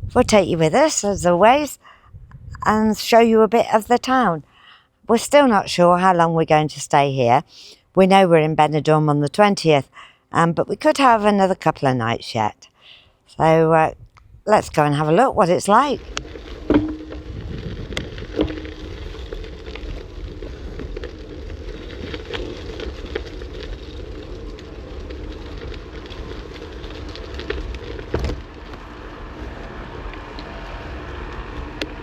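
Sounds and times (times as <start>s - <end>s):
wind rumble on microphone: 0.0s - 3.4s, 13.8s - 32.0s
bicycle tyre noise: 15.6s - 32.0s.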